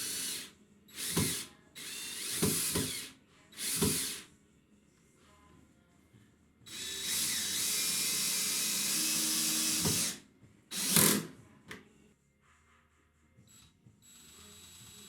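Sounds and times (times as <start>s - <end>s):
cordless drill motor whine: 0.0s - 4.2s, 6.7s - 11.2s.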